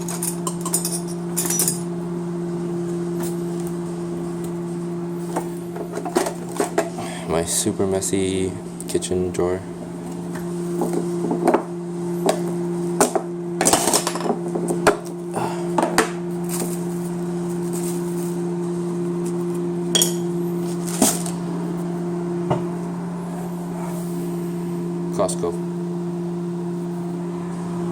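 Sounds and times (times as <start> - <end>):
cutlery clinking in a drawer: 0.0 - 1.8
steady low hum: 0.0 - 27.9.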